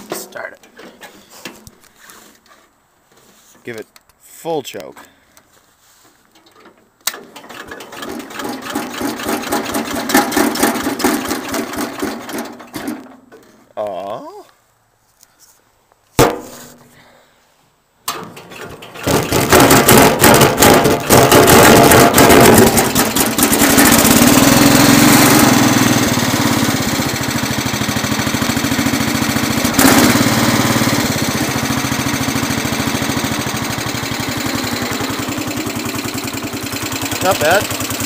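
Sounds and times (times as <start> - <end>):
starter cranking: 7.0 - 12.8, 18.2 - 38.0
single-cylinder engine running: 7.3 - 12.7, 18.5 - 38.0.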